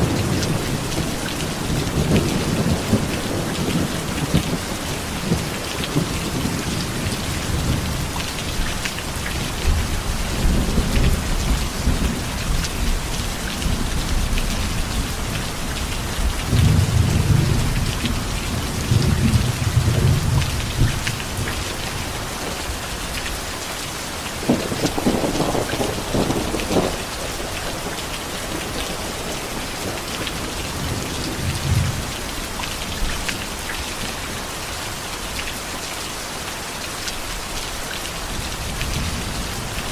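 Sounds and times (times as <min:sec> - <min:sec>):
thunder rumbling: 0:00.0 - 0:08.2, 0:09.4 - 0:22.6, 0:24.4 - 0:32.1
heavy rain falling: 0:00.0 - 0:39.9.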